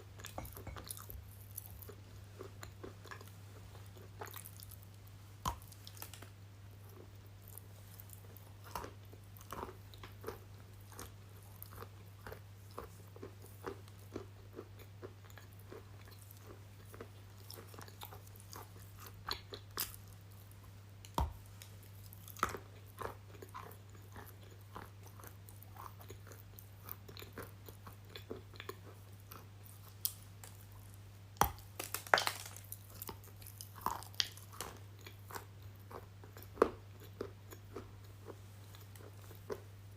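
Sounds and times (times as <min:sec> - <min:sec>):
low electrical hum: 0:00.0 - 0:39.9
crunchy chewing and biting: 0:21.1 - 0:39.7.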